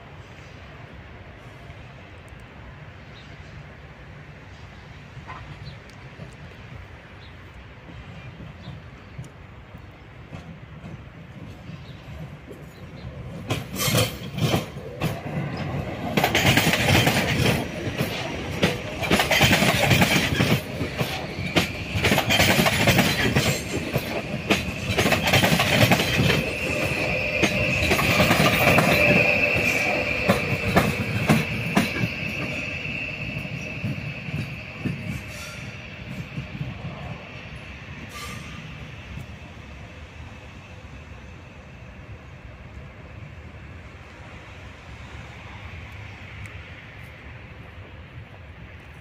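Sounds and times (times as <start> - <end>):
train wheels clattering: 10.2 - 37.1
high wheel squeal: 19.3 - 37.3, 38.0 - 39.1.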